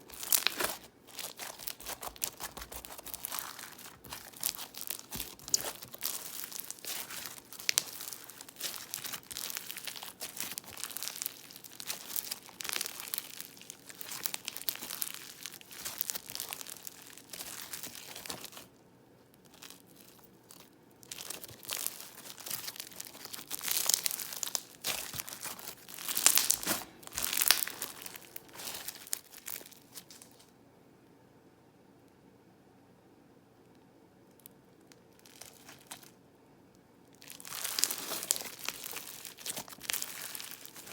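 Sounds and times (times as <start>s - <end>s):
crunchy slime squeezed by hand: 0.0s - 18.7s, 19.5s - 30.3s, 37.2s - 40.9s.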